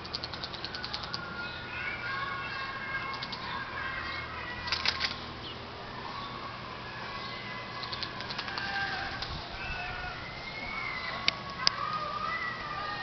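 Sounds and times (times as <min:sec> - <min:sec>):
small birds chirping and trilling: 0:00.0 - 0:13.0.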